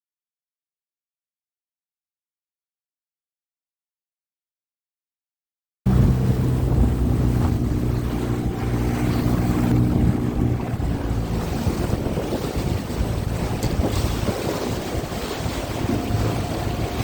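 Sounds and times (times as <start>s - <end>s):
boat motor running: 5.9s - 17.0s
wind buffeting microphone: 5.9s - 17.0s.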